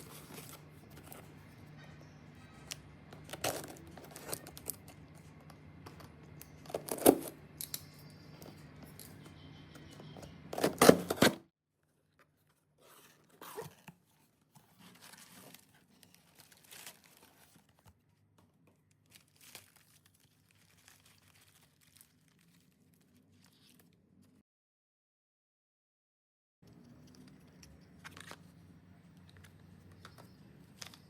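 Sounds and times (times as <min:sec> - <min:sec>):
package rustling and clicking: 0:03.2 - 0:09.2.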